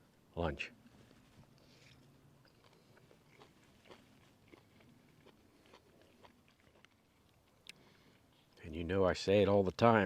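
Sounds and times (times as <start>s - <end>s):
man chewing: 1.5s - 8.6s.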